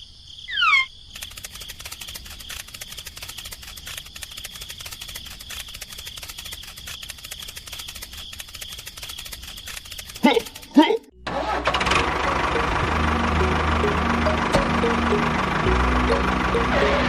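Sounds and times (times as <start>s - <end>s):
fast clicking rattle: 1.1s - 11.1s
high motor whine: 11.4s - 17.0s.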